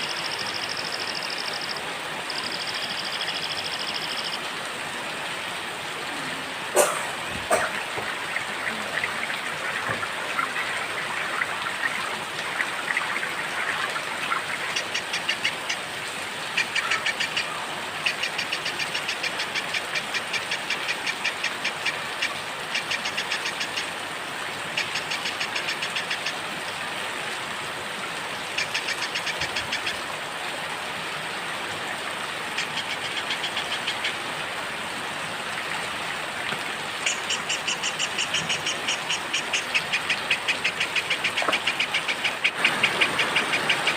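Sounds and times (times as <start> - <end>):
steady rain: 0.0 - 43.9.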